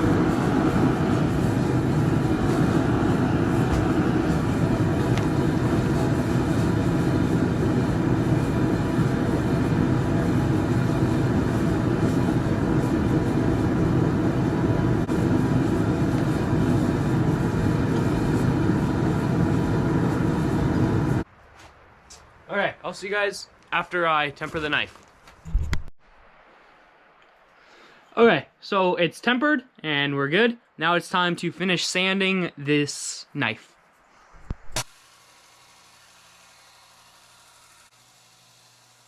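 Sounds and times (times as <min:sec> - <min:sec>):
forge roaring: 0:00.0 - 0:21.2.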